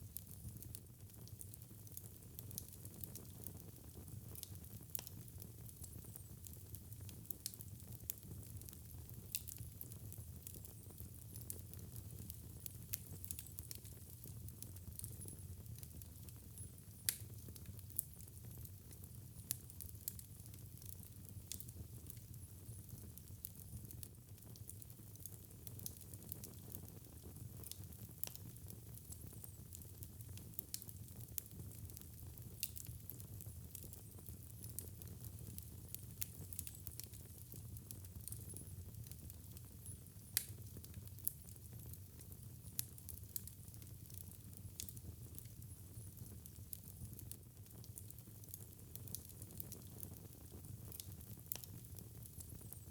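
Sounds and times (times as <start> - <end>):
fire crackling in fireplace: 0.0 - 52.9.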